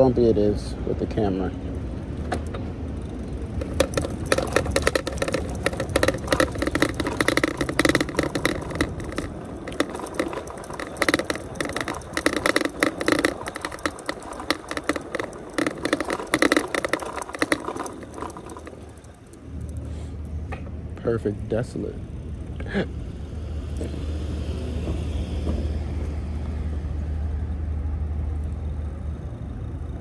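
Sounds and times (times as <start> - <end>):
bike rattling over cobblestones: 1.2 - 30.0.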